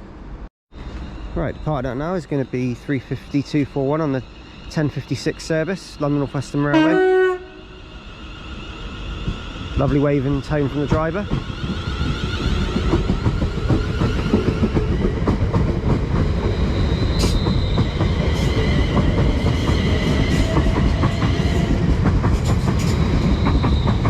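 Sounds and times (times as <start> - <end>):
electric train rumbling: 0.0 - 24.0
wheels clacking over rail joints: 10.8 - 24.0.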